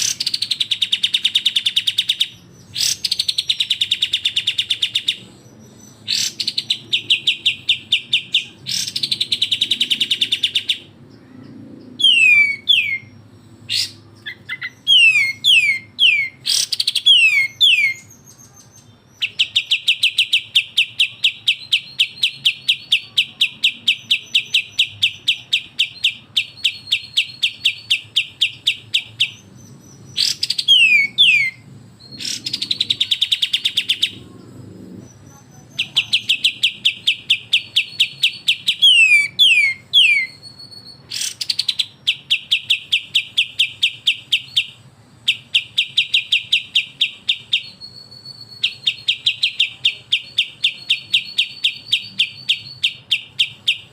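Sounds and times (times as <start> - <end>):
bulbuls calling with rattling trills: 0.0 - 53.9
downward-sweeping bird whistles: 12.0 - 18.6, 23.9 - 33.8, 35.1 - 53.9.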